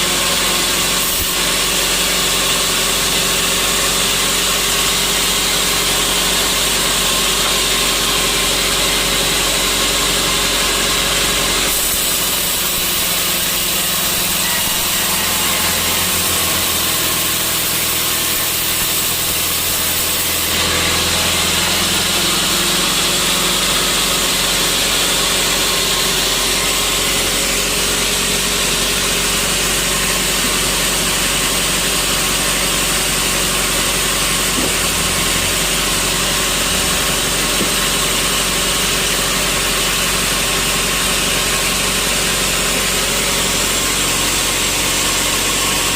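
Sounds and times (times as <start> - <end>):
sawmill machinery humming: 0.0 - 45.9.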